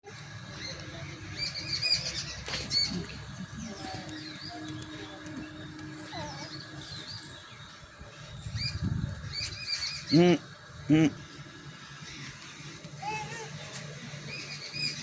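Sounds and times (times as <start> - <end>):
low outdoor rumble: 0.0 - 15.0
small birds chirping: 0.2 - 15.0.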